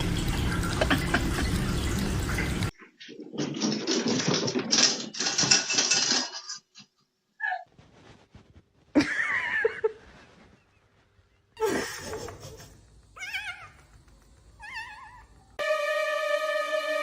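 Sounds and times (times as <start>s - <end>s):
music: 15.6s - 17.0s.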